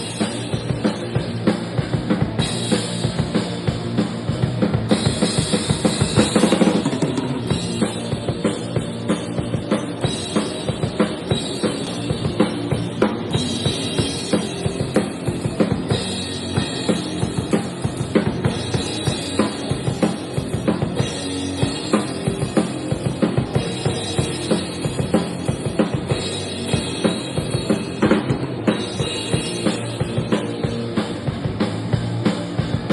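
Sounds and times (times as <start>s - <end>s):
rock band playing: 0.0s - 32.9s.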